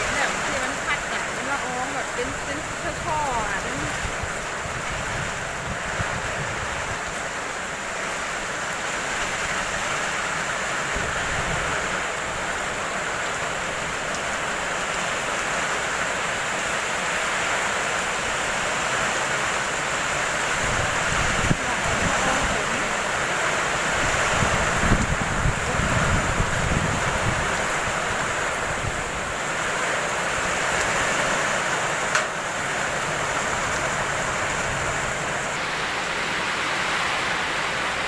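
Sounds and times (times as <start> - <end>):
strong wind gusts on microphone: 0.0 - 7.4, 10.8 - 12.8, 20.3 - 29.4
heavy rain downpour: 0.0 - 38.0.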